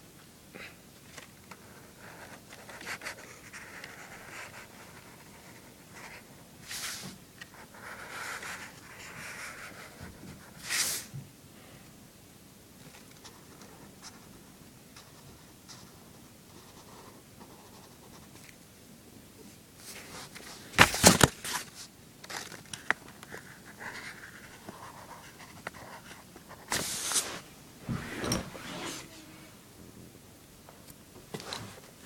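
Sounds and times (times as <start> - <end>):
faint scratching: 23.3 - 29.6
short hiss: 26.7 - 29.5.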